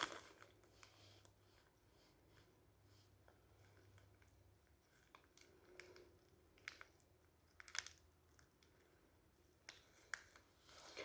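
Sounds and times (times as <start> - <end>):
small crinkles: 3.6 - 9.0, 9.6 - 11.0.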